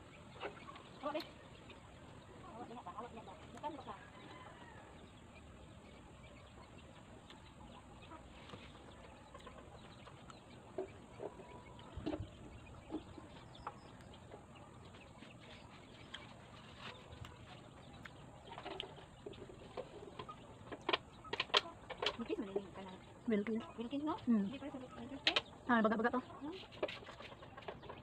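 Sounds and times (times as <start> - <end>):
faint chicken clucking: 0.0 - 28.0
fruit being chewed: 7.1 - 7.6, 13.0 - 21.0.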